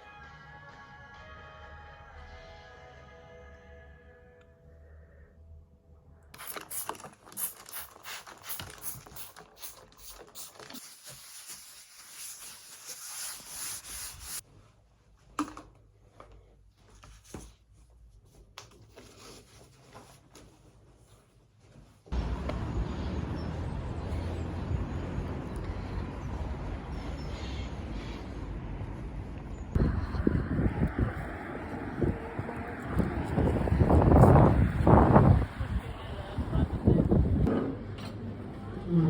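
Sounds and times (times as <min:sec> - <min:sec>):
rubbing and scraping: 0:07.0 - 0:14.5.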